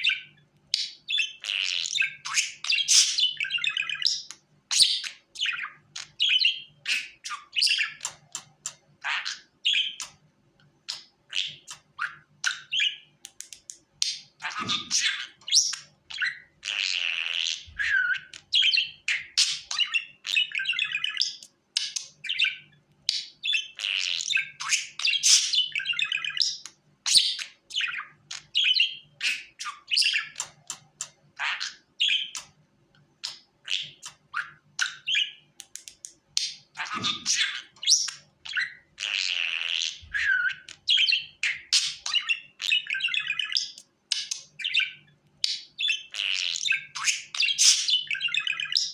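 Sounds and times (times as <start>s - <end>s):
budgerigar chattering: 0.0s - 10.2s, 10.9s - 13.1s, 14.0s - 32.6s, 33.2s - 35.4s, 36.4s - 48.9s.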